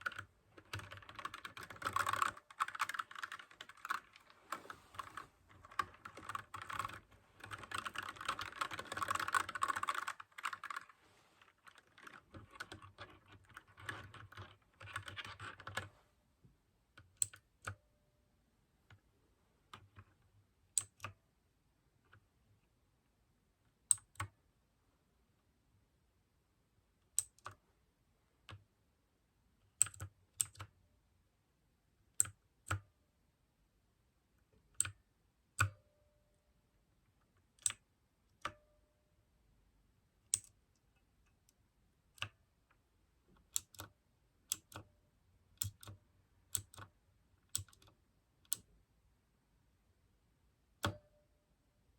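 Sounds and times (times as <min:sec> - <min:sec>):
clicky mechanical keyboard typing: 0:00.0 - 0:15.9, 0:20.8 - 0:21.2, 0:29.8 - 0:30.7, 0:43.4 - 0:43.9, 0:44.5 - 0:44.9, 0:45.6 - 0:46.9, 0:47.5 - 0:48.7.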